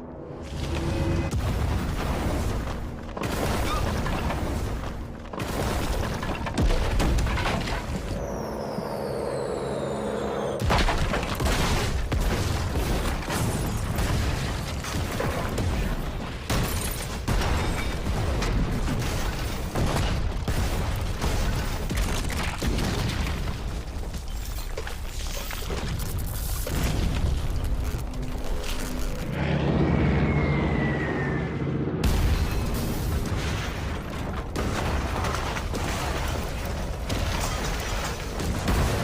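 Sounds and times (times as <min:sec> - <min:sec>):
heavy explosions: 0:00.3 - 0:03.7, 0:29.2 - 0:37.4
falling bomb whistle: 0:29.6 - 0:31.9.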